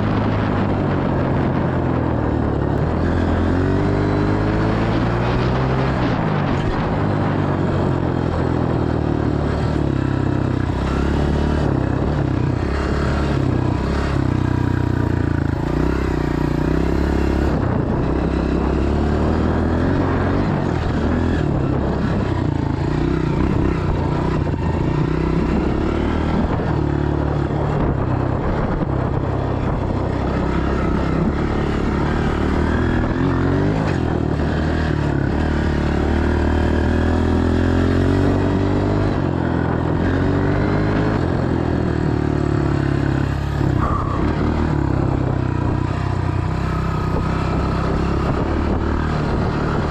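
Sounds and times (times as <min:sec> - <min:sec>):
dirt bike engine revving: 0:09.4 - 0:28.0.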